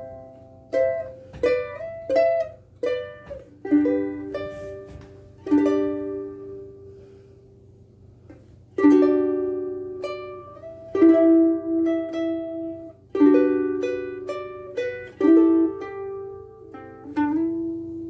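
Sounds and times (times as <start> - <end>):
ukulele chords and notes: 0.0 - 7.3, 8.2 - 18.0.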